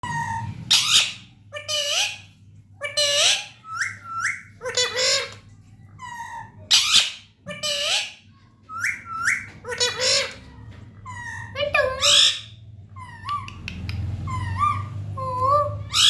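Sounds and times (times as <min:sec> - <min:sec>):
parrot squawking and whistling: 0:00.0 - 0:05.4, 0:06.0 - 0:10.4, 0:11.1 - 0:16.0.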